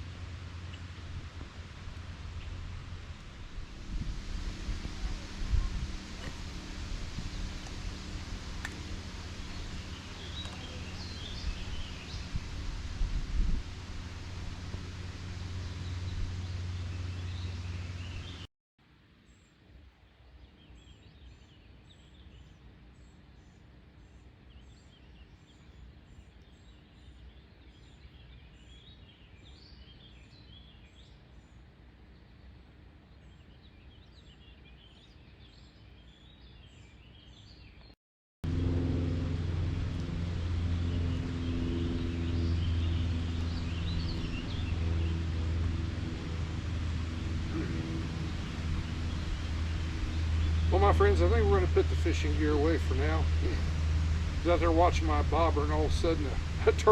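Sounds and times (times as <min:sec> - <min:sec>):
low engine hum: 0:00.0 - 0:18.5, 0:38.4 - 0:56.9
birds chirping and singing: 0:05.0 - 0:13.5, 0:40.7 - 0:56.9.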